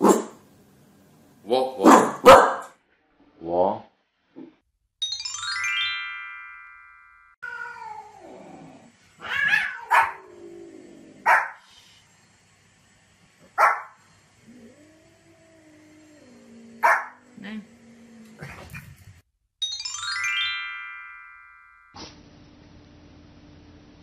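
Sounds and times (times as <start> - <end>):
small dog barking: 1.8 - 2.7, 9.4 - 10.2, 11.2 - 11.6, 13.6 - 14.0, 16.8 - 17.2
rising chime jingle: 5.0 - 7.4, 19.6 - 22.0
wavering meow-like cries: 7.4 - 8.6, 9.2 - 10.3.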